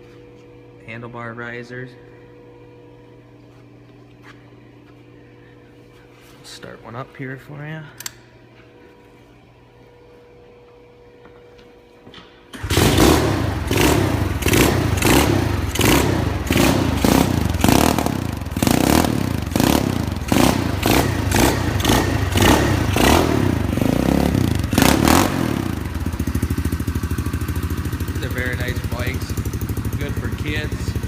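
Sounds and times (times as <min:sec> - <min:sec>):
motorcycle engine revving and idling: 0:12.6 - 0:31.0.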